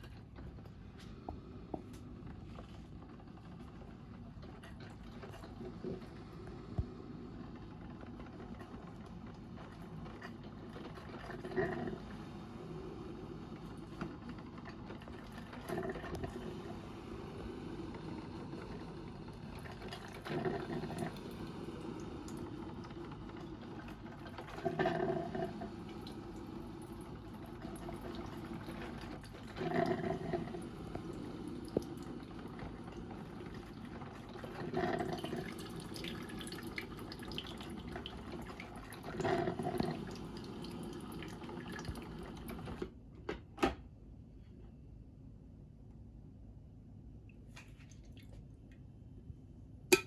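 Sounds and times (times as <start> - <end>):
coffee maker water hissing: 5.4 - 42.9
gurgling spurts of water: 19.5 - 22.8, 23.4 - 42.8.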